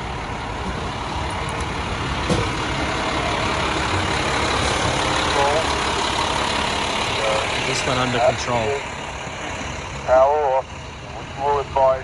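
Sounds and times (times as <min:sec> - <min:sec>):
fire truck engines rumbling: 0:00.0 - 0:12.0
street noise hiss: 0:00.0 - 0:12.0.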